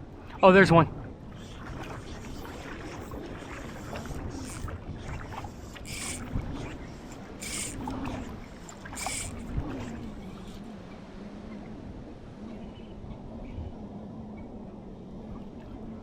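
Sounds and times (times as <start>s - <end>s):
shallow water sloshing: 1.1s - 11.0s.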